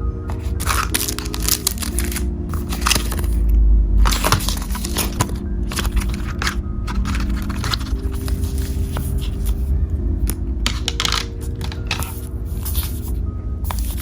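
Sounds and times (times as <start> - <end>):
soft instrumental music: 0.0 - 14.0
packaging crackling: 0.3 - 3.4, 4.0 - 9.5, 10.7 - 12.2.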